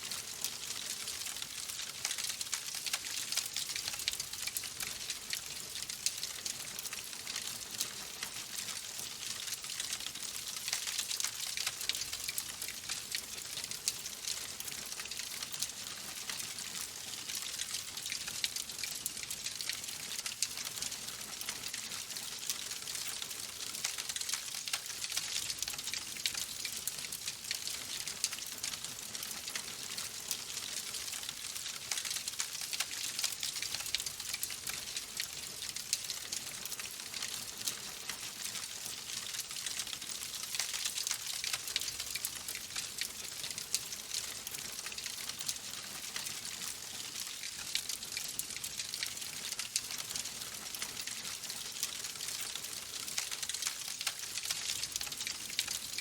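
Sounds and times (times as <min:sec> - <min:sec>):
log fire crackling: 0:39.2 - 0:56.0.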